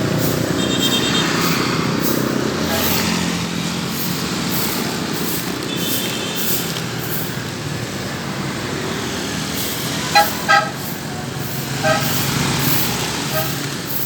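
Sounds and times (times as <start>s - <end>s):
road traffic: 0.0s - 14.0s
vehicle horn beeps: 0.5s - 1.5s, 2.6s - 3.2s, 5.7s - 6.7s, 10.1s - 10.9s, 11.8s - 12.3s, 13.3s - 13.6s.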